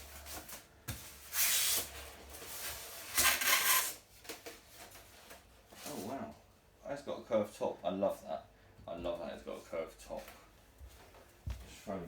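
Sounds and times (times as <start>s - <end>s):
packing material rustling scrapes: 0.0s - 6.1s.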